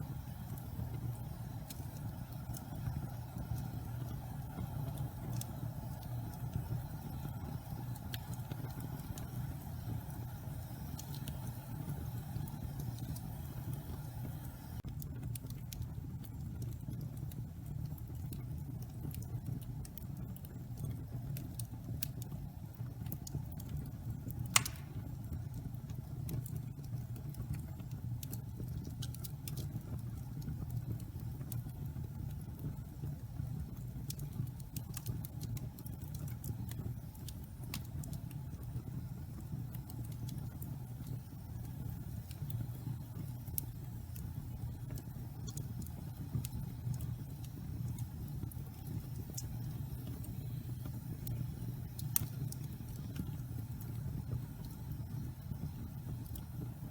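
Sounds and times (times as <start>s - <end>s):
wood fire rumble and crackles: 0.0s - 56.9s
loud pop of burning log: 24.5s - 25.2s.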